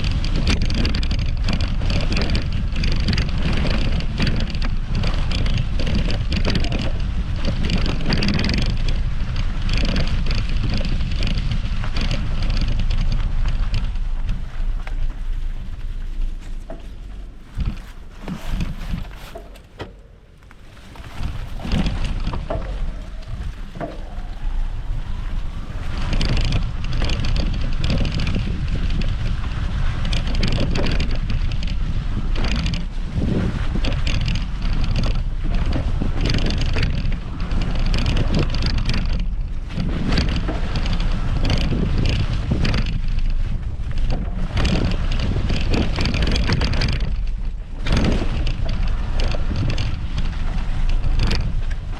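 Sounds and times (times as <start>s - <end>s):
bike tyres crunching on ground: 0.0s - 51.9s
wind buffeting microphone: 0.0s - 51.9s
bike clattering knocks: 16.4s - 51.9s.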